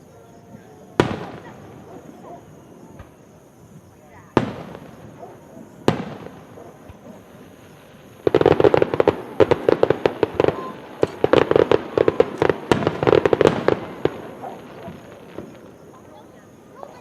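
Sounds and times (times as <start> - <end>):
fireworks crackling pops: 0.0 - 17.0
firework bang: 1.0 - 2.1, 2.8 - 3.3, 4.3 - 7.5, 8.1 - 16.2.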